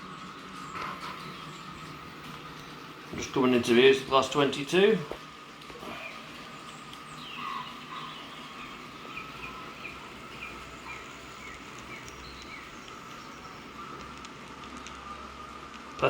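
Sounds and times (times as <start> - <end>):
bird chirping: 0.0 - 4.7, 5.8 - 15.5
model locomotive whine: 0.0 - 16.0.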